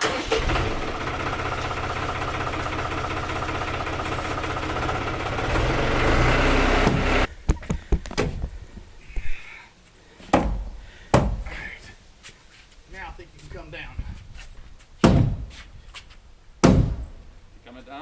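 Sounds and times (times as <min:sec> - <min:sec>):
tractor engine running: 0:00.0 - 0:07.3.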